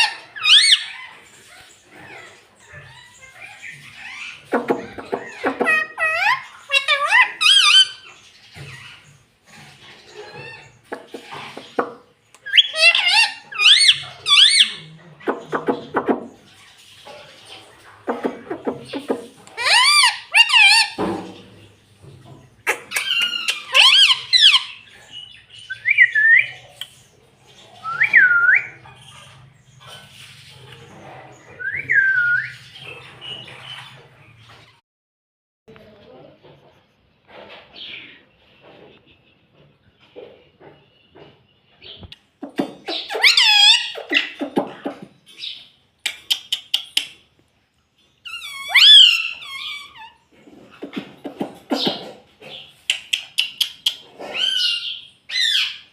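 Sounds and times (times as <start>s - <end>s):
parrot shrieks: 0.0s - 1.1s, 12.5s - 14.8s, 19.5s - 21.0s, 22.9s - 24.8s, 42.9s - 44.5s, 48.2s - 50.3s
parrot low chattering: 2.9s - 8.1s, 18.0s - 21.0s, 22.6s - 24.9s, 42.4s - 45.2s, 48.3s - 55.8s
parakeet squawks: 10.2s - 16.3s, 42.4s - 45.6s.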